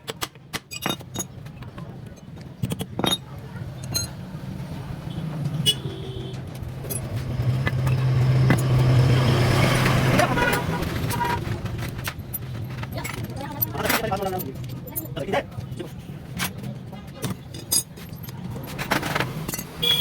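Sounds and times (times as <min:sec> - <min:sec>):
metal tools clinking: 0:00.7 - 0:04.2, 0:10.1 - 0:20.0.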